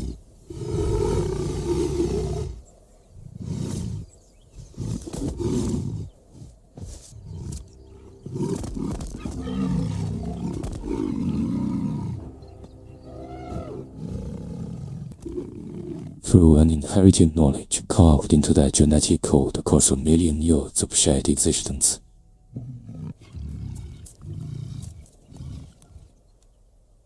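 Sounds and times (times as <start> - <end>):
lion low calls: 0.0 - 16.4, 22.5 - 26.2.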